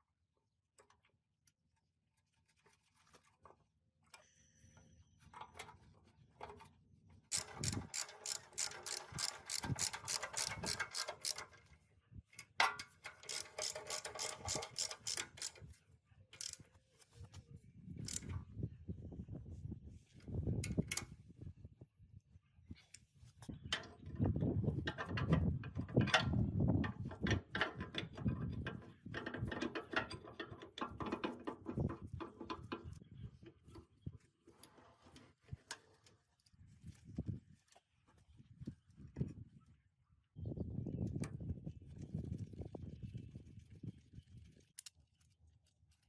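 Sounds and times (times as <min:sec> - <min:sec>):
rapid metal clicking: 0:13.1 - 0:15.6.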